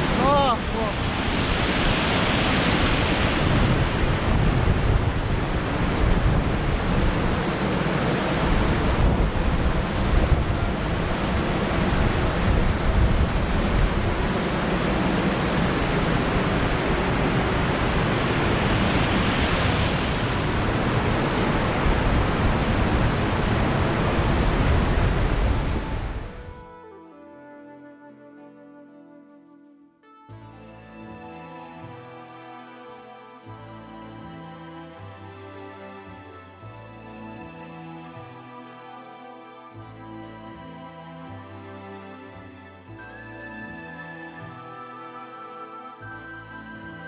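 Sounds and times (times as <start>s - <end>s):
strong wind buffeting microphone: 0.0s - 26.8s.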